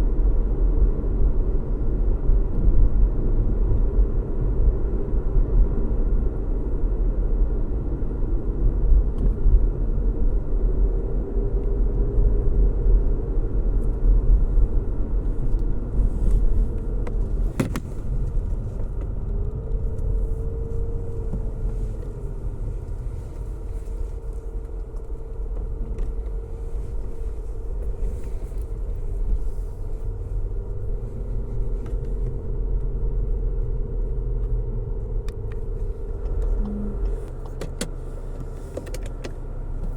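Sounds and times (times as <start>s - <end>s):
car road and engine rumble: 0.0s - 39.9s
faint wavering hum: 20.1s - 37.3s.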